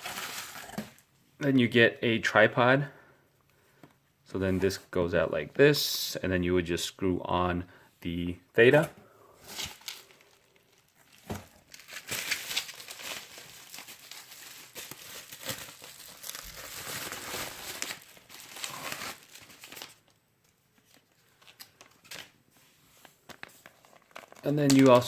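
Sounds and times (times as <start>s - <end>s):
packaging crinkling and rustling: 0.0s - 1.0s, 9.4s - 22.4s, 23.0s - 25.0s.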